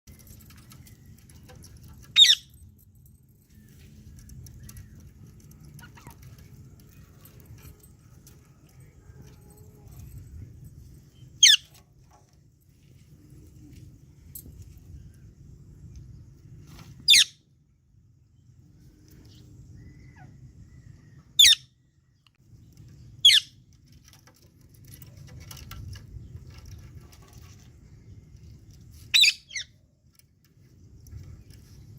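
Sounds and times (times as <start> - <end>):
parrot shrill calls: 2.1 - 2.5, 11.4 - 11.7, 17.1 - 17.4, 21.4 - 21.7, 23.2 - 23.5, 29.1 - 29.8.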